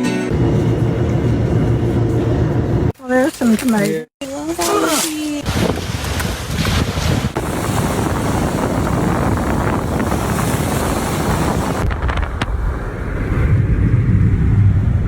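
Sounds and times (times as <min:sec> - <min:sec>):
wind rushing over microphone: 0:05.4 - 0:15.0.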